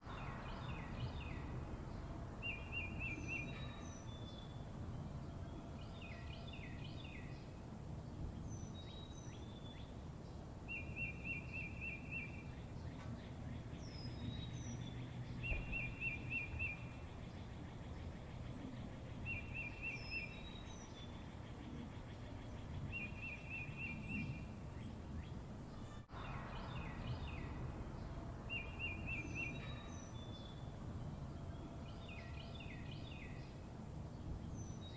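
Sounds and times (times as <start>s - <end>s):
songbird trilling: 10.7s - 24.4s, 28.5s - 30.6s.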